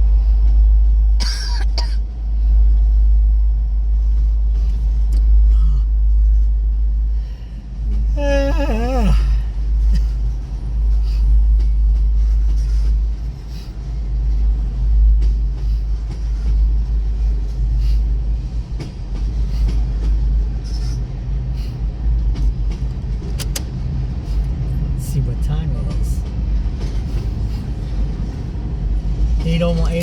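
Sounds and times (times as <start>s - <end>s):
freight train rumbling: 0.0s - 30.0s
wheels clicking on rails: 7.5s - 30.0s.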